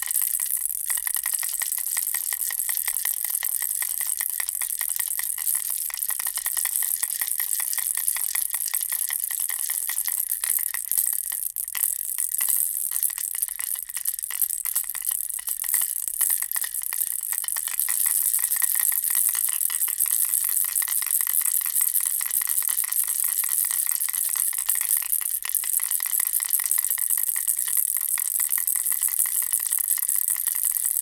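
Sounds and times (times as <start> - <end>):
baby rattle shaken: 0.0 - 31.0.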